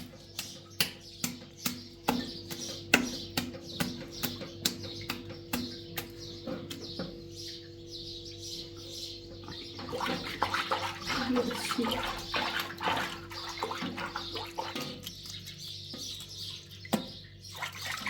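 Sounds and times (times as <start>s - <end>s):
water splashing and pouring: 9.8s - 15.1s, 17.5s - 18.0s.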